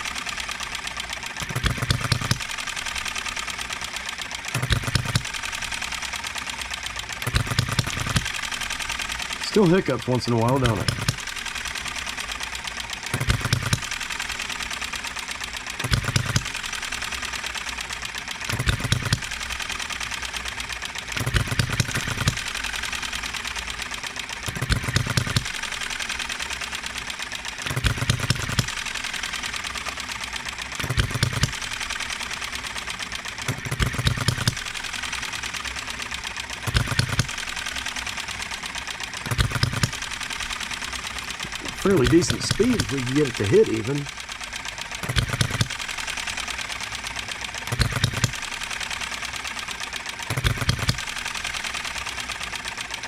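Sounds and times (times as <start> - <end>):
engine clatter coasting on flywheels: 0.0 - 53.0
hit-and-miss engine firing: 7.2 - 11.8, 39.2 - 44.2.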